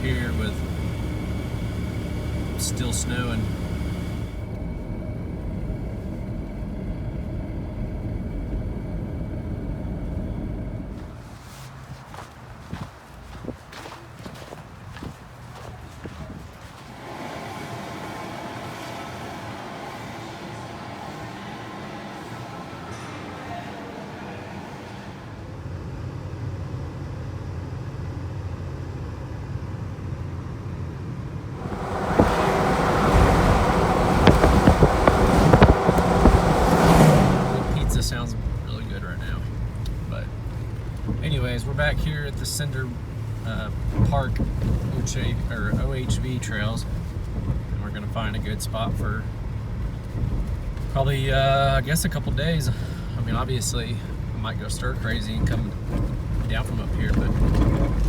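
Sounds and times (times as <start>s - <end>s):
road noise: 0.0s - 26.8s, 31.3s - 58.0s
car engine rumble: 0.0s - 58.0s
rough noise with knocks and crackles: 31.6s - 38.1s, 55.4s - 58.0s.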